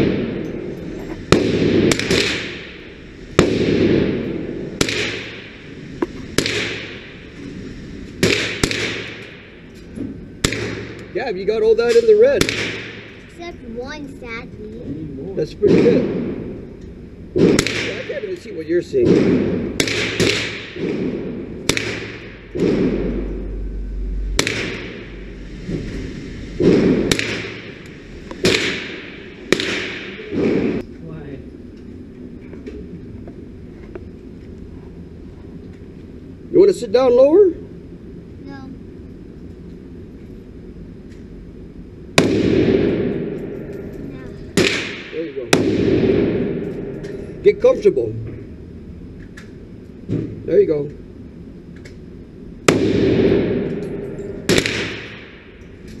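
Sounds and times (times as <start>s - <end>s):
gunshots with ringing echo: 0.0s - 7.3s, 8.2s - 9.7s, 10.4s - 11.1s, 11.8s - 13.4s, 15.6s - 18.4s, 19.0s - 23.6s, 24.3s - 25.4s, 26.6s - 30.8s, 42.1s - 47.9s, 52.7s - 55.8s.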